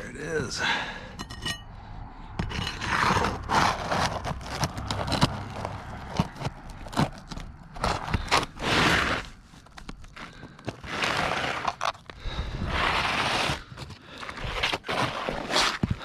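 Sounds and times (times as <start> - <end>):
hand tools clicking and tapping: 1.1 - 1.7
tools scraping on roof shingles: 2.4 - 16.0.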